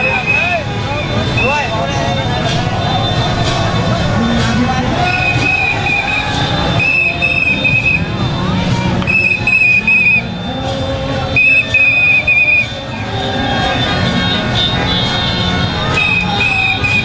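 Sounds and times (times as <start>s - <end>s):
trilling whistle blasts: 5.0s - 8.2s, 9.0s - 10.2s.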